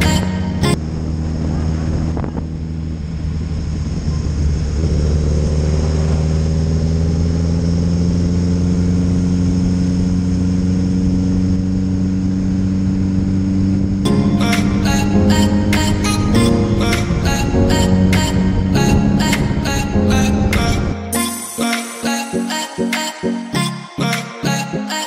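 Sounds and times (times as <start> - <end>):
motorcycle engine accelerating: 0.7 - 20.8.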